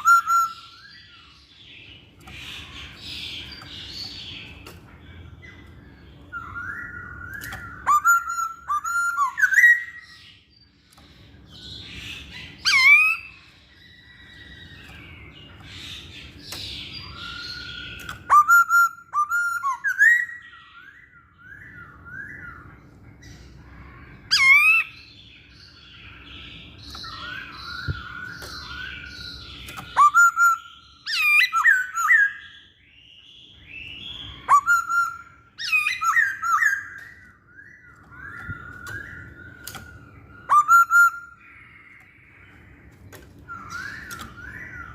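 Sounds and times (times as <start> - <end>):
bird singing whistled phrases: 0.0 - 1.4, 5.5 - 10.3, 16.8 - 22.8, 26.8 - 42.5.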